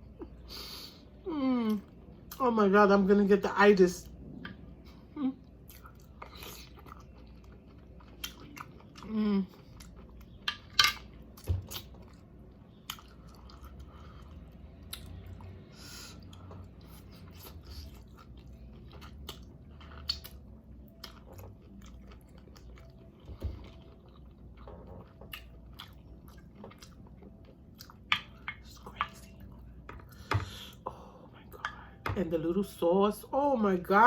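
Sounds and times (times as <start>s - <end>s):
wet chewing sounds: 5.5s - 30.9s.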